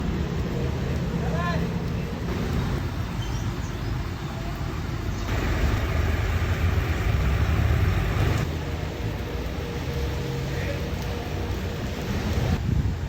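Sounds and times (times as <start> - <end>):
bus engine rumbling: 0.0 - 12.6.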